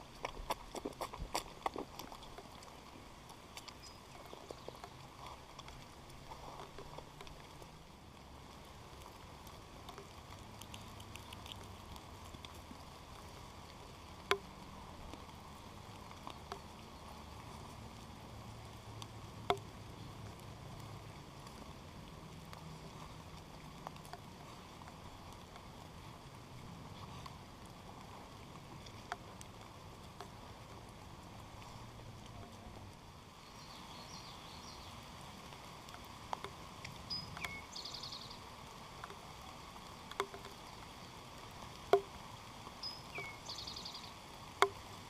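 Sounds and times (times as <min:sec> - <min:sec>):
drops pattering and ticking: 0:00.0 - 0:08.2, 0:14.1 - 0:15.4, 0:38.9 - 0:40.8, 0:41.8 - 0:42.2
rain falling: 0:00.0 - 0:45.0.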